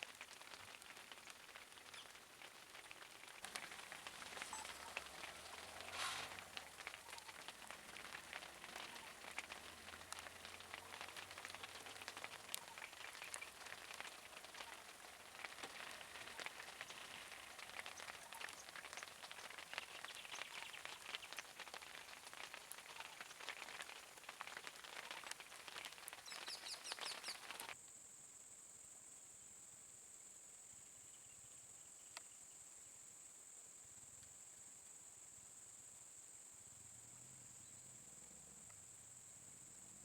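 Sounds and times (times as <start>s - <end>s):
heavy rain falling: 0.0s - 27.8s.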